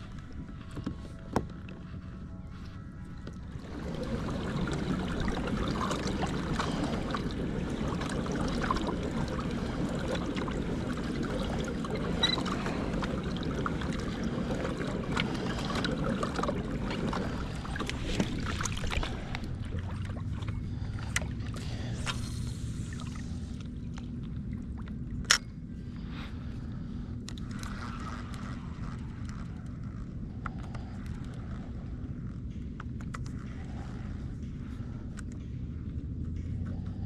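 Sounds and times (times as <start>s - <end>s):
water lapping against a hull: 0.0s - 37.0s.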